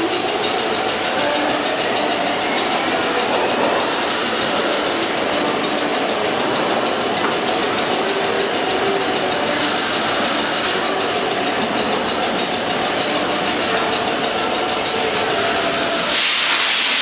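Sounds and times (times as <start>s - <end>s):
subway train rumbling: 0.0s - 17.0s
wheels clicking over rail joints: 0.0s - 17.0s.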